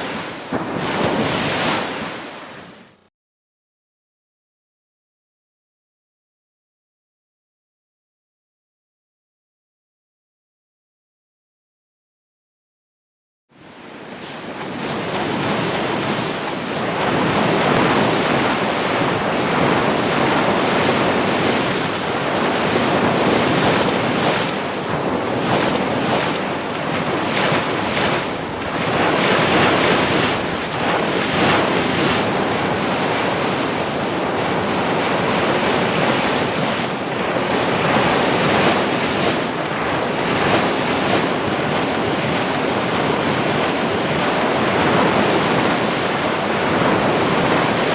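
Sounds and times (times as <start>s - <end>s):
waves breaking: 0.0s - 3.0s, 13.6s - 47.9s.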